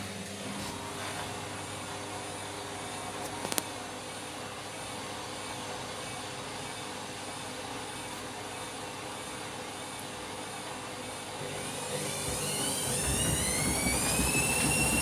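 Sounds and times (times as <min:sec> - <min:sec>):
washing machine drum spinning: 0:11.3 - 0:15.0.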